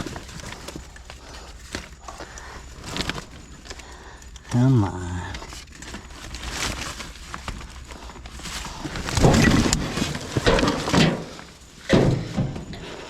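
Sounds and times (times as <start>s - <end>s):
scrap clunking in a dumpster: 8.4s - 13.0s.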